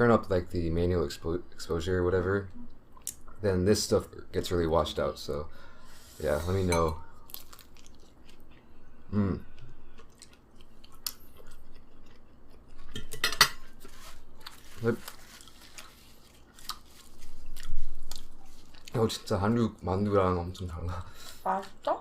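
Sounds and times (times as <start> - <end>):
chewing: 9.4 - 13.1, 13.8 - 19.2.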